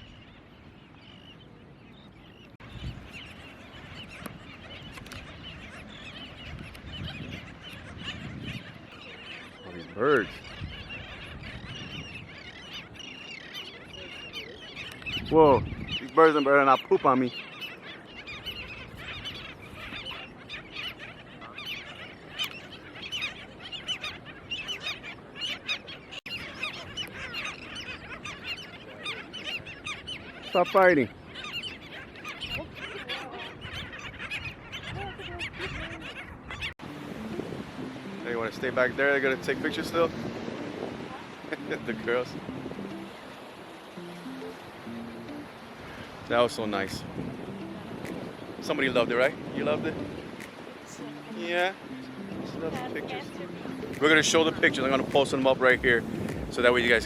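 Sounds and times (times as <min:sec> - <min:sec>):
flock of birds calling: 0:00.0 - 0:57.0
wind rumble on microphone: 0:02.5 - 0:09.1, 0:10.2 - 0:12.7, 0:14.9 - 0:16.2, 0:32.4 - 0:43.6, 0:45.8 - 0:51.1, 0:51.8 - 0:57.0.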